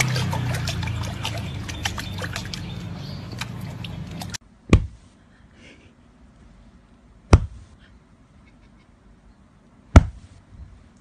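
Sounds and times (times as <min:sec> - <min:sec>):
dull heavy thumps: 0:04.7 - 0:05.0, 0:07.3 - 0:07.7, 0:09.9 - 0:10.3.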